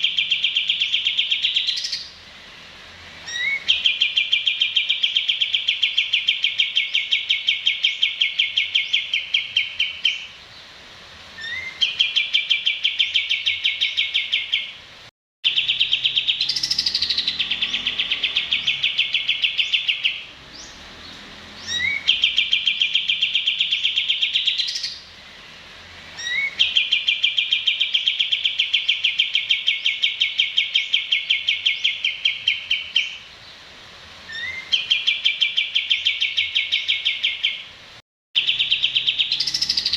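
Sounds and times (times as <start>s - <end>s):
songbird repeating high notes: 3.2s - 10.3s.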